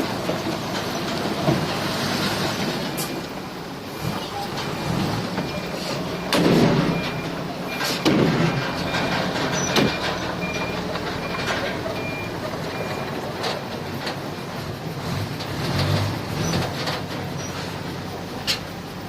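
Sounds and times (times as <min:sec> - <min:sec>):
heavy machinery running: 0:00.0 - 0:19.0
reversing alarm beeping: 0:05.2 - 0:13.2.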